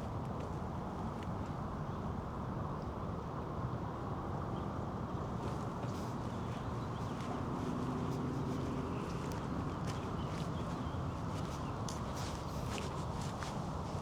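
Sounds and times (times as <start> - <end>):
city ambience rumble: 0.0 - 14.0
light footstep clicks: 5.4 - 14.0.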